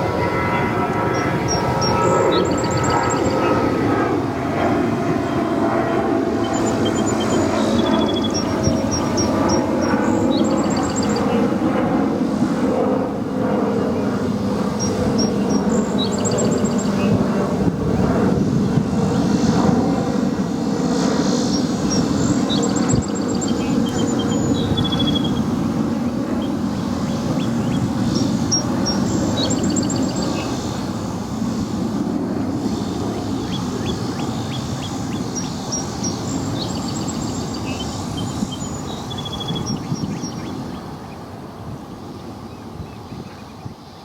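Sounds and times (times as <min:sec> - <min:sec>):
jet engine rumble: 0:00.0 - 0:44.0
high bird chirps: 0:06.4 - 0:11.4, 0:21.4 - 0:30.7, 0:33.2 - 0:40.6.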